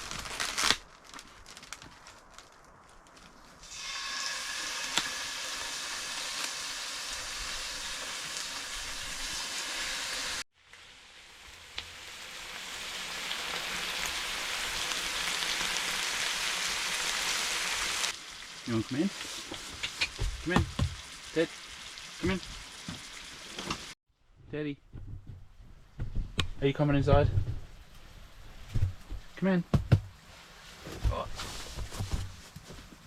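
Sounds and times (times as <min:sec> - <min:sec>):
steak sizzling in a pan: 0:03.6 - 0:23.9.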